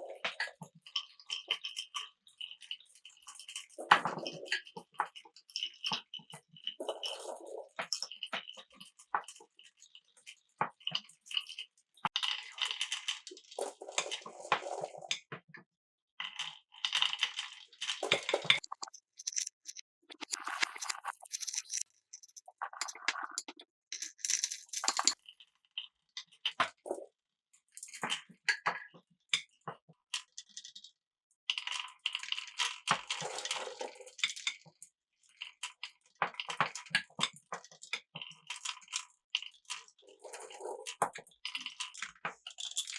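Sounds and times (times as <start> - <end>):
marbles rattling through marble run: 18.5 - 25.2.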